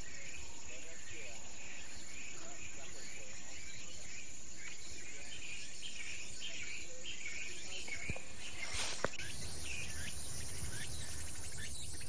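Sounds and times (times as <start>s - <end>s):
insect chorus chirping: 0.0s - 12.0s
brief rustle: 7.9s - 9.3s.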